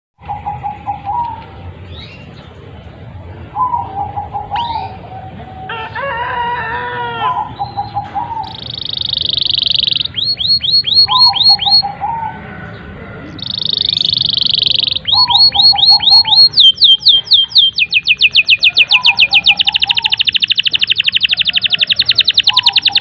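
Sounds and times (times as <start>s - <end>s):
canary singing: 3.5s - 6.0s, 7.0s - 23.0s
other birds warbling: 3.5s - 23.0s.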